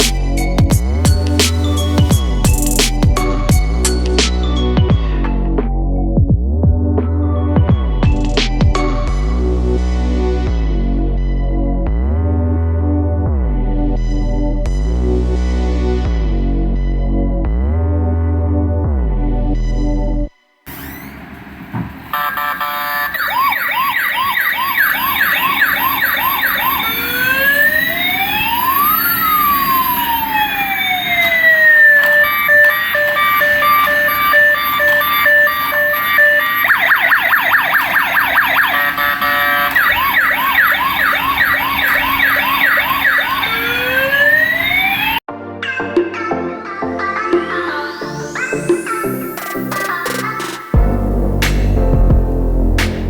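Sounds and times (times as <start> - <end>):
toy police siren: 22.1 - 45.2.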